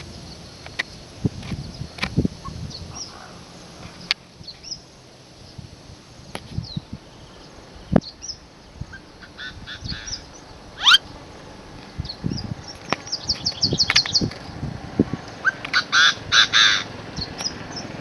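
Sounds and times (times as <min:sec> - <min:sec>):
bird chirps: 0:06.6 - 0:11.2, 0:11.9 - 0:14.6
fast rising bird call: 0:08.2 - 0:11.2.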